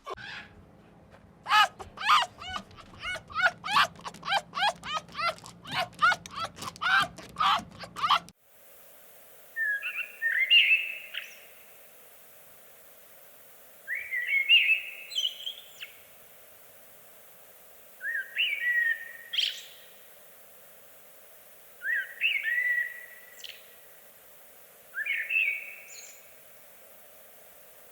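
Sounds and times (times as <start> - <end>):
faint steady hiss: 0.8 - 27.9
songbird whistling: 13.9 - 15.9, 18.0 - 19.8, 21.8 - 23.6, 24.9 - 26.2.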